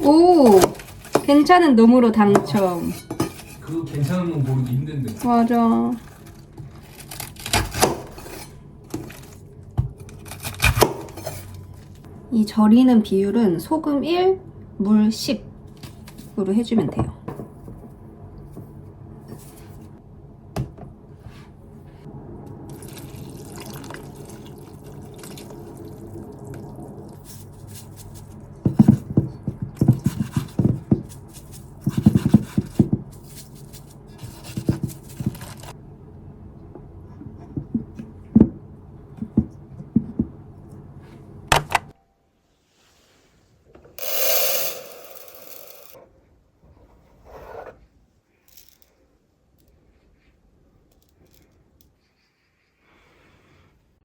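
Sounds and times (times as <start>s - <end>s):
steady low hum: 0.0s - 30.0s
water splashing in a basin: 22.7s - 27.1s.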